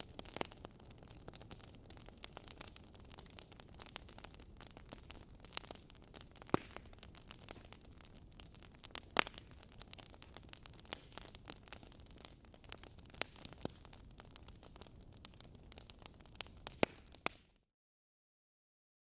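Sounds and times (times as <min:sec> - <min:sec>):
fireplace fire crackling and popping: 0:00.0 - 0:17.7.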